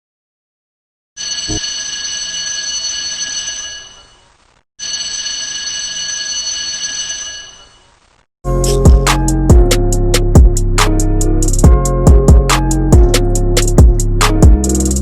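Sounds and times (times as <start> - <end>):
alarm bell ringing: 1.2 - 4.2, 4.8 - 7.9.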